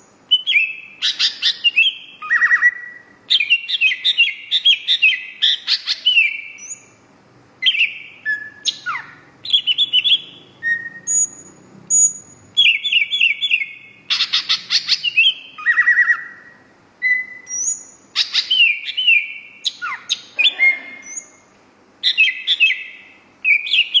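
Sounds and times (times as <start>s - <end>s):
songbird singing: 0.0s - 24.0s.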